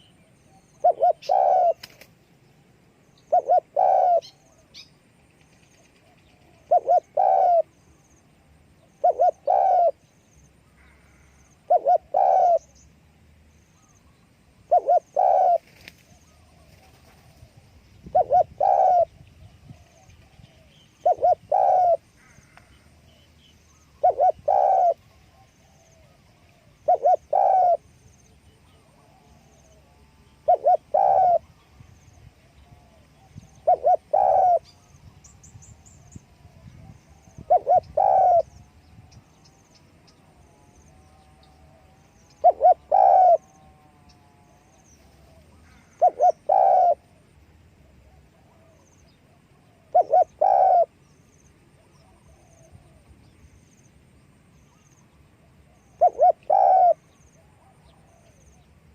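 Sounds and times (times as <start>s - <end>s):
dove cooing: 0.0s - 2.1s, 3.2s - 4.9s, 5.8s - 7.8s, 8.8s - 10.1s, 10.8s - 12.8s, 14.6s - 23.2s, 23.8s - 34.8s, 35.8s - 51.0s, 54.7s - 58.7s
small birds chirping: 0.0s - 2.4s, 13.6s - 17.4s, 18.0s - 43.7s, 48.5s - 53.9s.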